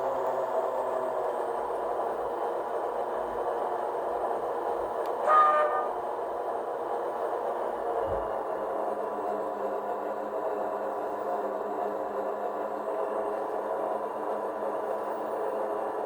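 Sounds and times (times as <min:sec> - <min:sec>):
model locomotive running sounds: 0:00.0 - 0:16.0
short train toot: 0:05.2 - 0:06.1.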